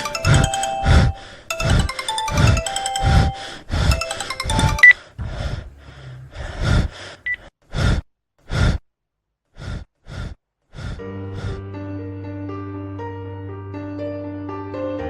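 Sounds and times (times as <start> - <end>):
soft music: 0.0 - 5.0, 11.1 - 15.0
person gasping for breath: 0.0 - 8.8, 9.5 - 11.6.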